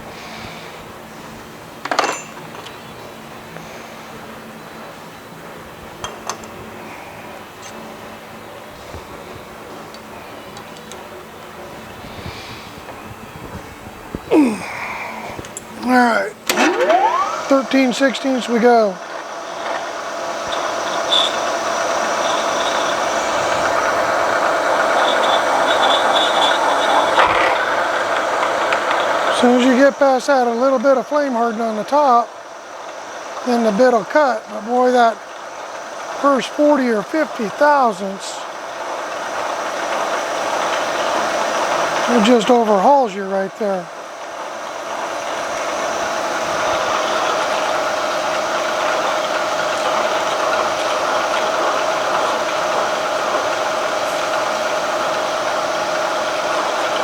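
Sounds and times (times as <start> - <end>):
milling machine hum: 0.0 - 57.0
drill bit grinding into steel: 14.3 - 38.5.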